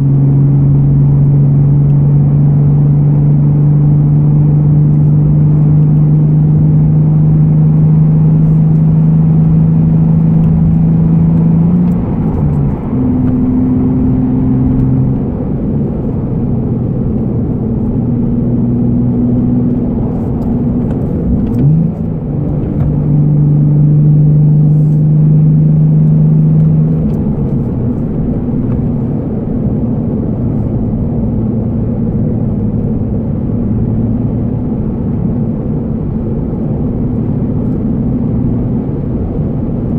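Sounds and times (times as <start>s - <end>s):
car engine drone from inside cabin: 0.0s - 39.9s.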